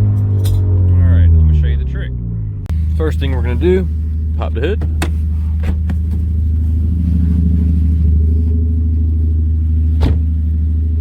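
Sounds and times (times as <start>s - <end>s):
car engine idling: 2.6s - 11.0s.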